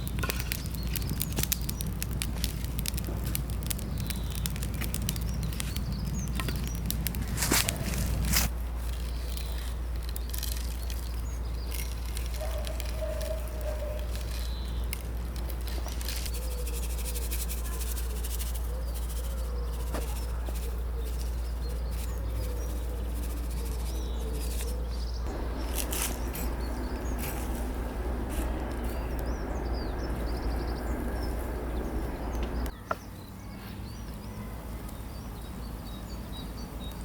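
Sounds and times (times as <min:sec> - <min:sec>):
birds chirping: 0:00.0 - 0:37.0
insects chirping: 0:25.3 - 0:32.7
low rumble: 0:25.3 - 0:32.7.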